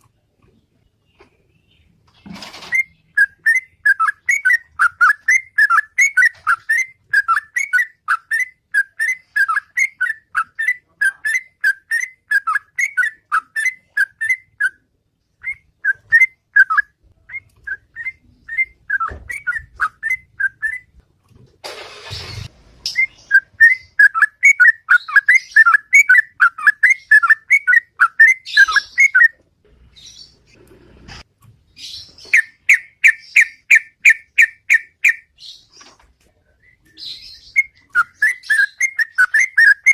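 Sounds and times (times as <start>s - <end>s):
bird singing whistled notes: 2.7s - 14.8s, 15.4s - 20.9s, 22.9s - 29.4s, 31.9s - 35.6s, 36.6s - 39.9s
rustling noise: 20.9s - 22.8s.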